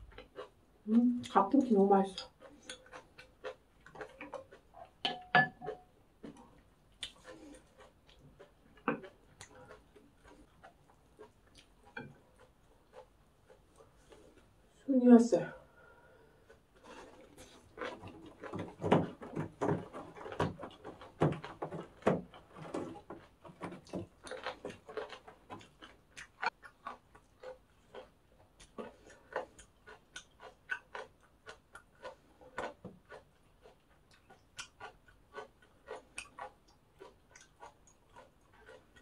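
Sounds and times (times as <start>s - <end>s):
crunchy chewing: 0.0s - 5.0s, 5.6s - 14.8s, 16.0s - 39.0s.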